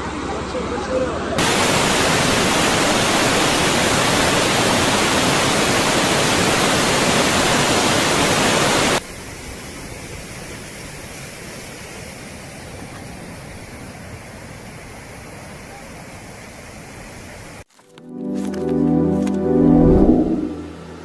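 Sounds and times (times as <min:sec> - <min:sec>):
water rushing: 0:01.4 - 0:09.0.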